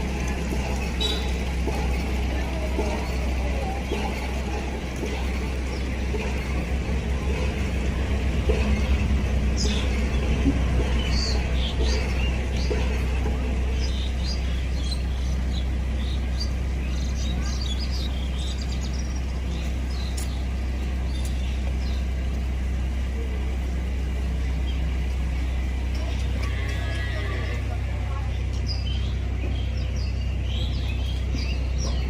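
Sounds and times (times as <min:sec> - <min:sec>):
low rumble: 0:00.0 - 0:32.0
small birds chirping: 0:00.0 - 0:32.0.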